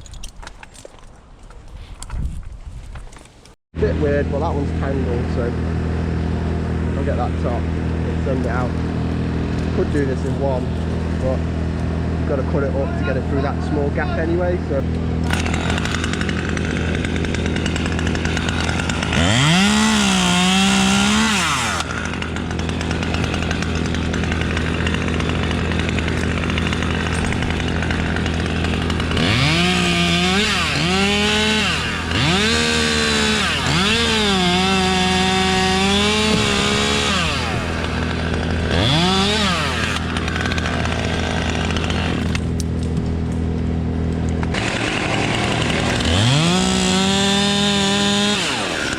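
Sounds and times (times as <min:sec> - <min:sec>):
chainsaw idling and revving: 0:03.8 - 0:42.8, 0:43.7 - 0:48.9.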